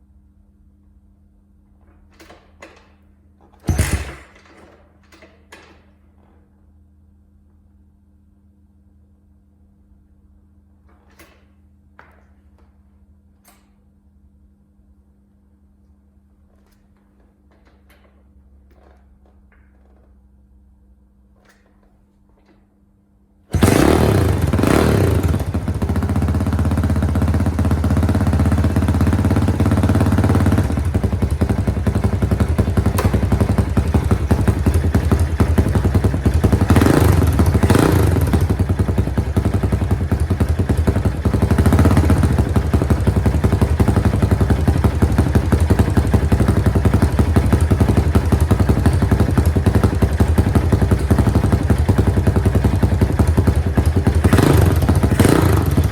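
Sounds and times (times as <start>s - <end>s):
motorcycle engine idling and revving: 3.7s - 4.3s, 23.5s - 55.9s.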